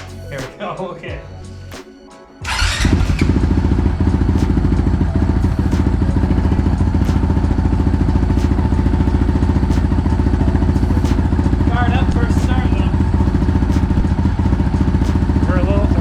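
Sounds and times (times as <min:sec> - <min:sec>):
motorcycle engine starting and idling: 0:02.4 - 0:16.0.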